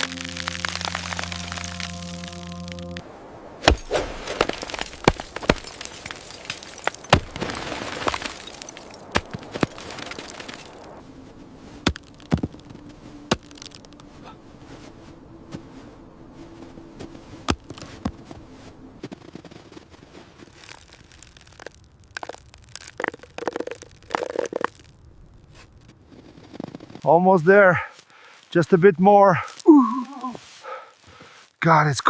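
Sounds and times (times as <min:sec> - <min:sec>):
sharp cracks: 0:00.0 - 0:03.0, 0:03.6 - 0:11.0, 0:11.8 - 0:14.2, 0:20.4 - 0:25.1.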